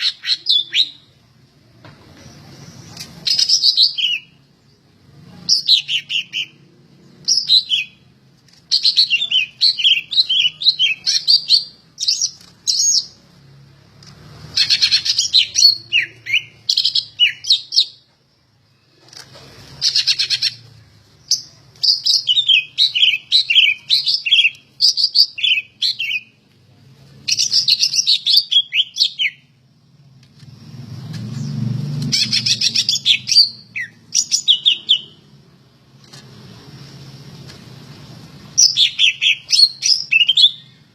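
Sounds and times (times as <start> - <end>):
bird singing whistled notes: 14.6 - 18.0, 21.3 - 26.3, 27.3 - 29.5, 32.2 - 35.3, 38.6 - 40.8.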